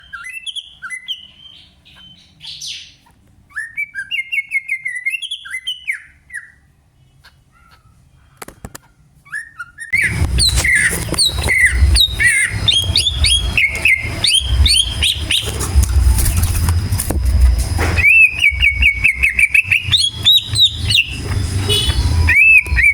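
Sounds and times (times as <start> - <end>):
bird singing varied chirps: 9.3 - 22.9
low rumbling background: 10.0 - 22.9.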